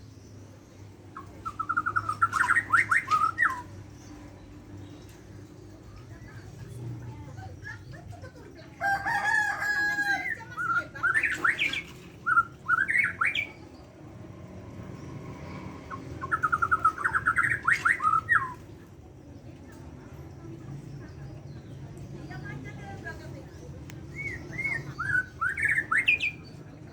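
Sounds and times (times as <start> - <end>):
songbird whistling song: 1.1 - 5.2, 9.0 - 14.0, 15.4 - 18.9, 23.9 - 26.9.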